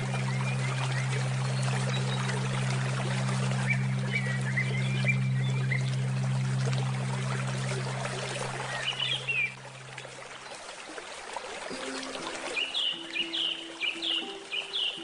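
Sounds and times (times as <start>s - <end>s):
low held musical tone: 0.0s - 10.4s
soft musical notes: 0.0s - 10.4s, 11.7s - 15.0s
stream water trickling: 0.0s - 15.0s
bird chirping: 12.6s - 15.0s.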